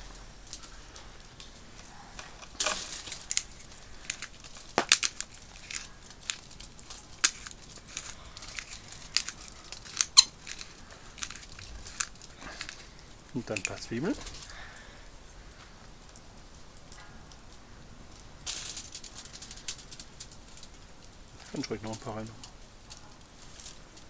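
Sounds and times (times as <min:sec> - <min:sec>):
aluminium foil crinkling: 0:00.0 - 0:24.0.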